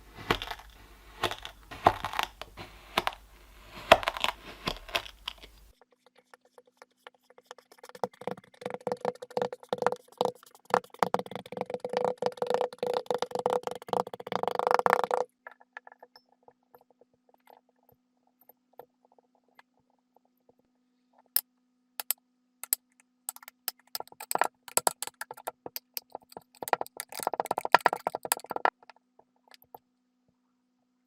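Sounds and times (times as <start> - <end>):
faint steady hum: 0.0 - 5.8.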